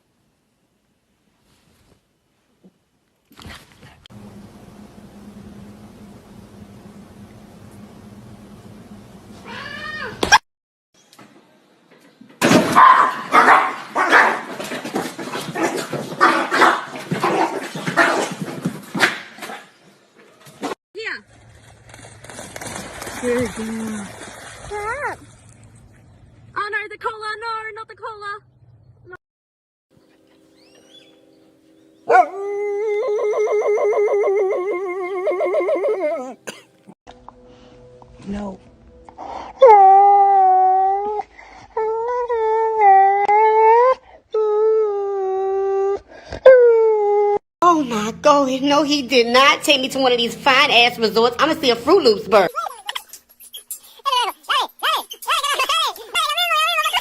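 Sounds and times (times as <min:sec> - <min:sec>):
animal cries: 0:09.4 - 0:10.4
dog howling: 0:32.1 - 0:36.4.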